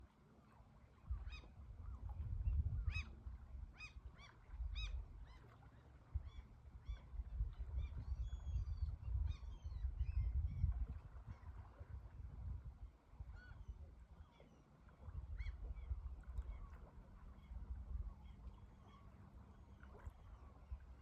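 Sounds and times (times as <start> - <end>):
waterbirds honking: 15.5 - 20.9.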